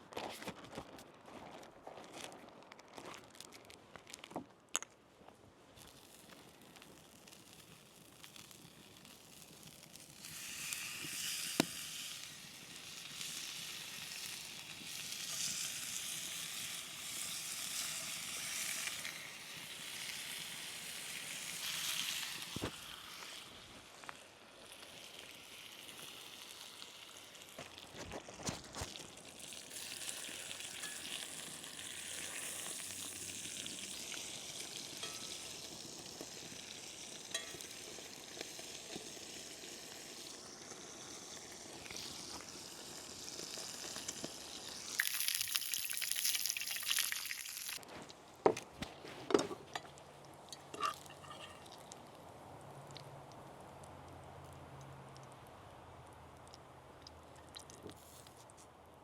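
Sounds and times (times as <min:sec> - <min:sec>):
food sizzling in hot fat: 0:05.8 - 0:47.9, 0:49.7 - 0:52.4.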